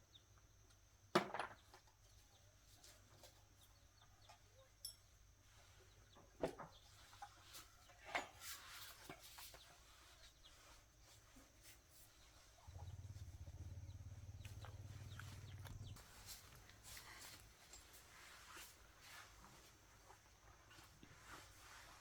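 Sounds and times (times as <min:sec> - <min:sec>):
low steady hum: 0:12.1 - 0:18.3
chickens clucking: 0:12.5 - 0:17.0.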